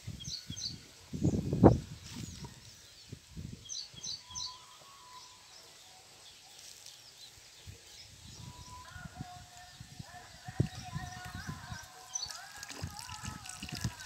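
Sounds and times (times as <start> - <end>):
bird chirping: 0.1 - 14.0.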